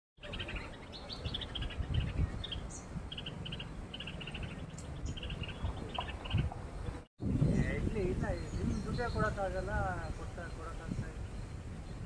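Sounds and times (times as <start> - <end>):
bird chirping high: 0.2 - 6.5.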